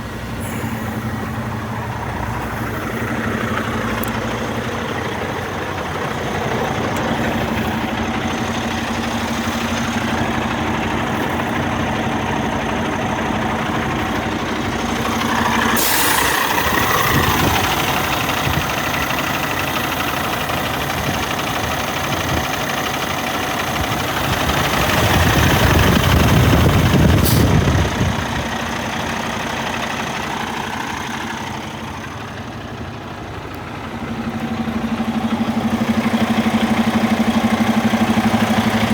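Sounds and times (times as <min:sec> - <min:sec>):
diesel truck engine idling: 0:00.0 - 0:38.9
air hiss: 0:15.6 - 0:18.2.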